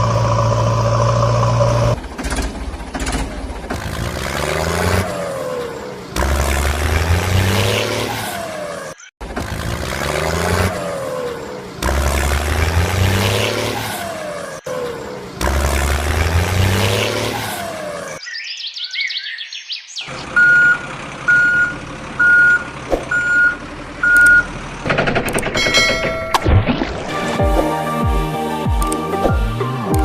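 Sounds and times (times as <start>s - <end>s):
truck engine revving: 0.0s - 18.2s, 20.1s - 25.6s
reversing alarm beeping: 20.4s - 24.5s.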